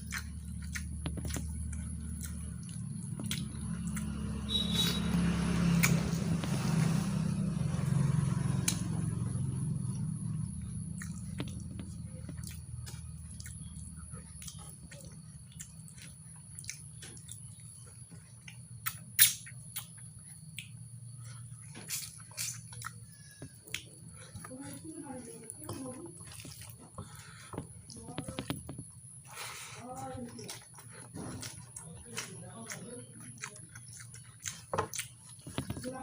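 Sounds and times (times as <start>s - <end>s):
low hum: 0.0s - 18.8s
person chewing food: 0.0s - 36.0s.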